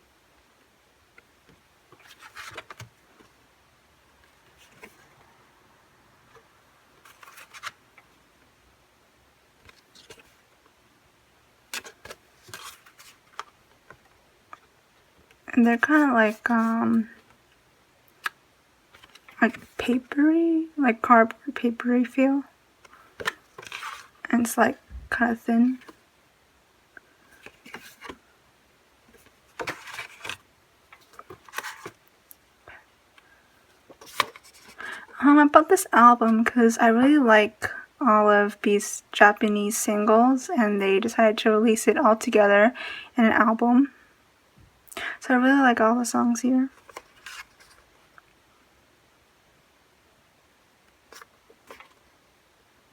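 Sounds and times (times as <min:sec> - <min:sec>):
cardboard cards rustling: 0:01.9 - 0:03.4, 0:04.2 - 0:05.2, 0:07.0 - 0:08.1, 0:09.6 - 0:10.4, 0:11.7 - 0:14.7, 0:15.6 - 0:17.4, 0:18.1 - 0:20.2, 0:22.8 - 0:24.3, 0:25.6 - 0:26.0, 0:27.2 - 0:28.2, 0:29.1 - 0:32.1, 0:33.6 - 0:35.1, 0:46.7 - 0:48.2, 0:51.0 - 0:52.1.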